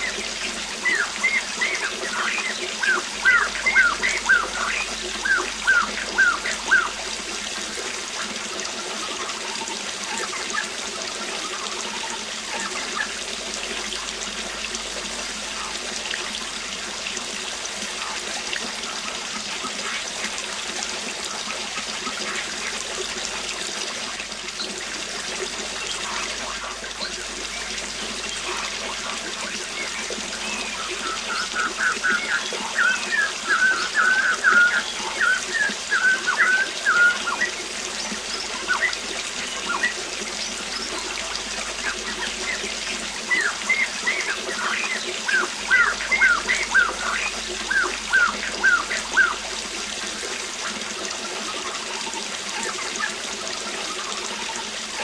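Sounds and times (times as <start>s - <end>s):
songbird singing: 0.0s - 7.2s, 25.7s - 49.4s
waterfall rushing: 0.0s - 55.0s.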